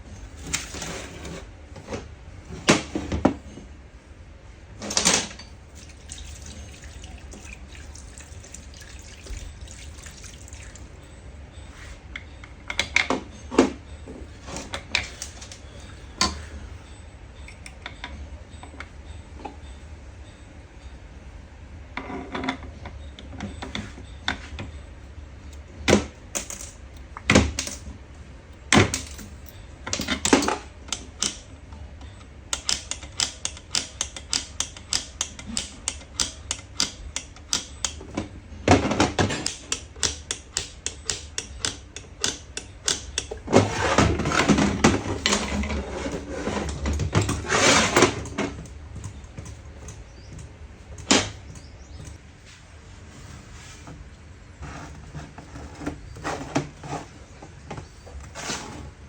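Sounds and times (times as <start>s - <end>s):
metal parts rattling and clattering: 28.8s - 30.6s, 43.5s - 49.6s
metal tools clicking and knocking: 38.8s - 43.4s.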